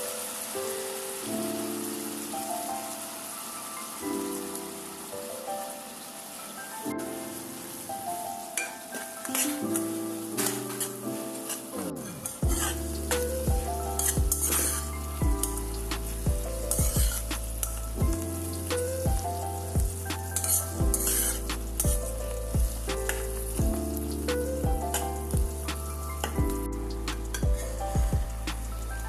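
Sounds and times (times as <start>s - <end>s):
food sizzling in oil: 0.0s - 29.0s
metal spatula scraping: 10.4s - 13.3s, 14.0s - 15.0s, 20.3s - 21.5s
background music with beat: 12.4s - 29.0s.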